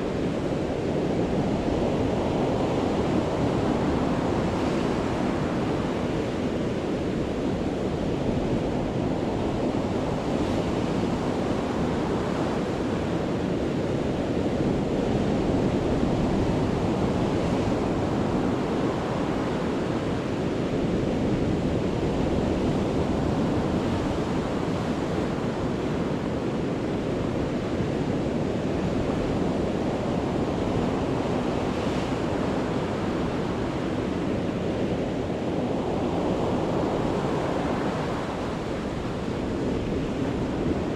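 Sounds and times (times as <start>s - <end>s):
sea waves breaking on shore: 21.6s - 40.9s.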